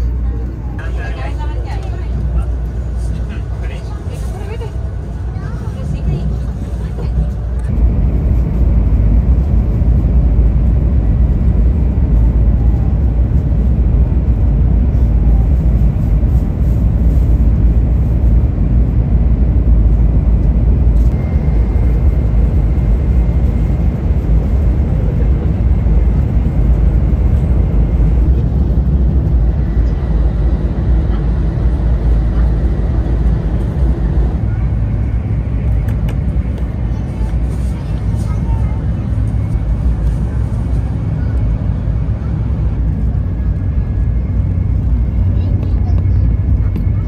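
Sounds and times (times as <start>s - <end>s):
train cabin low rumble: 0.0s - 47.0s
faint high whine: 20.9s - 24.9s.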